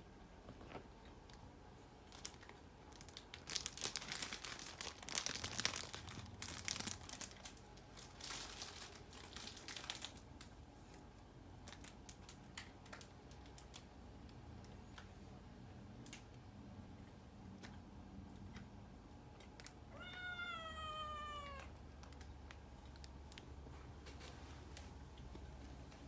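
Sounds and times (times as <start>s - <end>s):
crinkling and rustling: 0.4s - 1.4s, 2.0s - 15.2s, 21.8s - 26.0s
scattered clicks: 21.9s - 23.5s.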